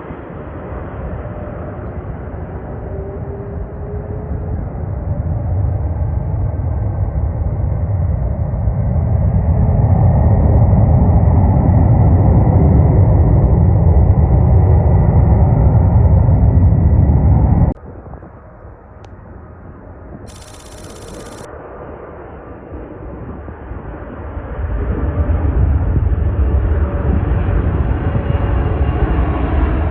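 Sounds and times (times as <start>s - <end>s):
jet airliner engine rumble: 0.0s - 19.4s.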